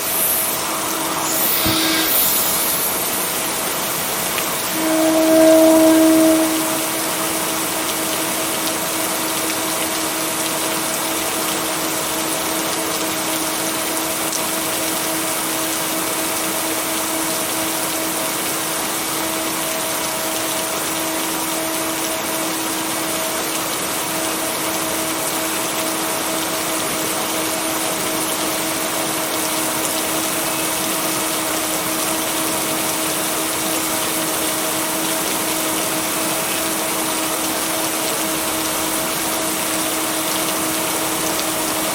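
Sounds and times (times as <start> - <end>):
steady rain: 0.0 - 41.9
constant low tone: 4.6 - 8.0.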